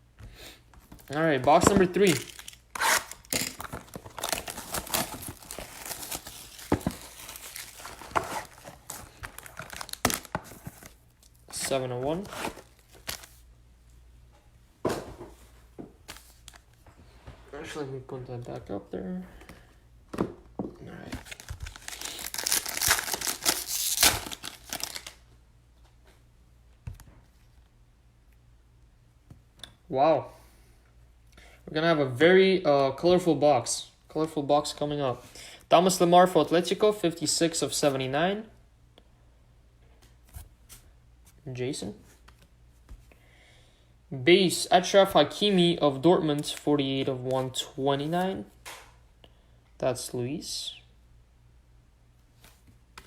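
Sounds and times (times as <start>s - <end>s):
plastic wrapping crinkling and tearing: 1.1s - 11.4s, 21.1s - 25.2s.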